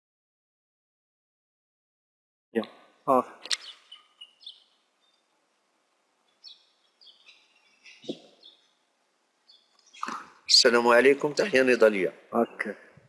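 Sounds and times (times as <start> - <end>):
small birds chirping: 2.6 - 12.6.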